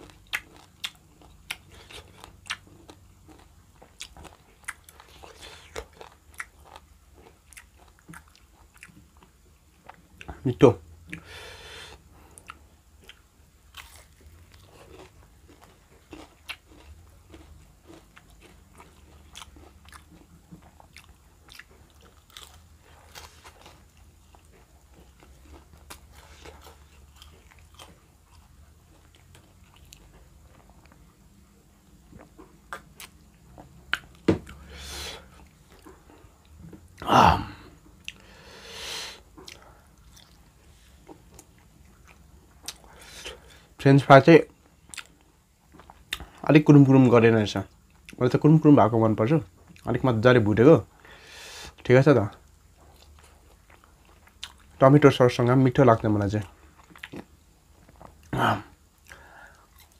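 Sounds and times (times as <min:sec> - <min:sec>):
chewing with wet mouth clicks: 0:00.0 - 0:10.4, 0:12.4 - 0:31.1, 0:32.0 - 0:34.6, 0:39.4 - 0:43.4, 0:44.8 - 0:46.5, 0:52.3 - 0:54.8, 0:56.6 - 0:58.3.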